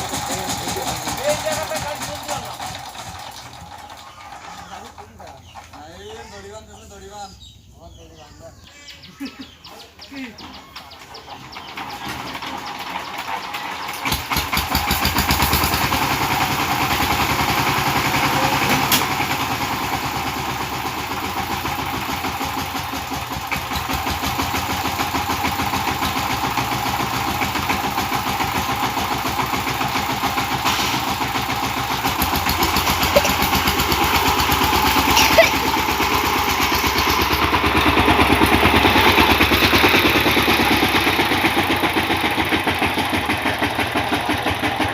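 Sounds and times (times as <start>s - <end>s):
power tiller engine chugging: 0.0s - 7.1s, 8.7s - 44.9s.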